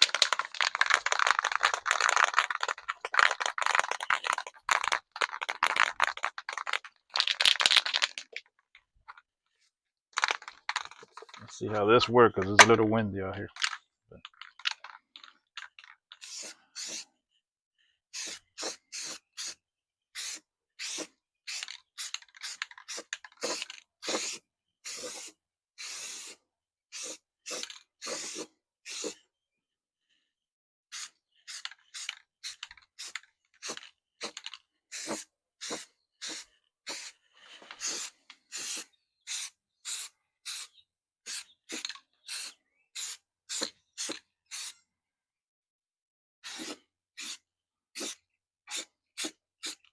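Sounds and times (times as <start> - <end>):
aerosol can spraying: 16.2 - 17.1, 18.2 - 19.6, 20.2 - 29.2, 30.9 - 44.8, 46.4 - 47.4, 48.0 - 49.8.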